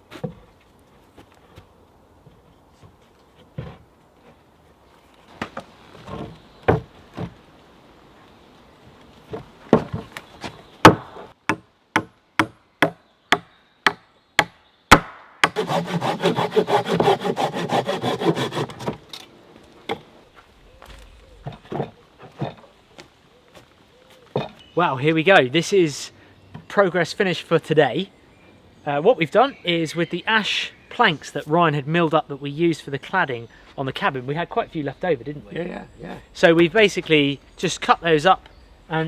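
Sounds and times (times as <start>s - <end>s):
sawing through wood: 15.4s - 19.0s.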